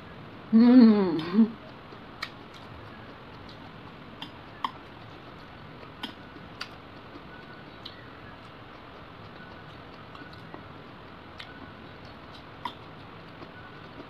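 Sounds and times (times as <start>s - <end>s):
person humming: 0.5s - 1.6s.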